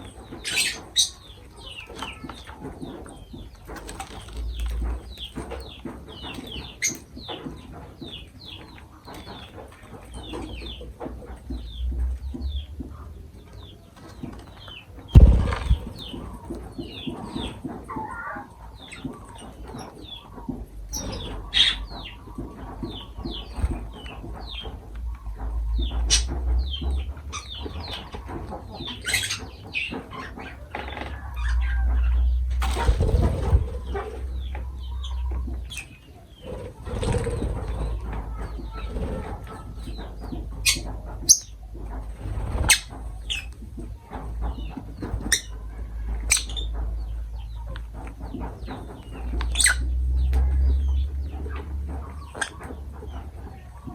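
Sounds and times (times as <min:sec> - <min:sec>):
lovebirds chirping: 0:00.0 - 0:53.9
wings flapping: 0:14.1 - 0:17.8, 0:32.6 - 0:34.3, 0:36.4 - 0:40.2
loud thump: 0:15.1 - 0:16.3.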